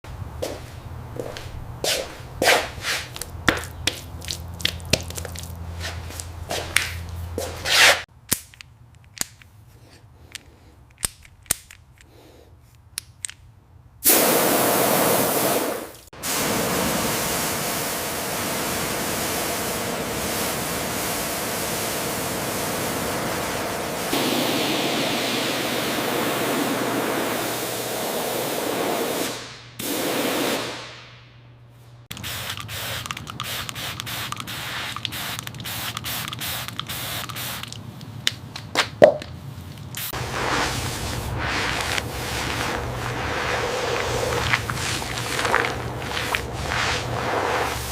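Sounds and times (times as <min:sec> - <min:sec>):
pressure washer water spray: 0:14.0 - 0:30.8, 0:32.1 - 0:37.8, 0:40.0 - 0:47.9
scattered clicks: 0:32.1 - 0:38.7
low hum: 0:40.2 - 0:47.9.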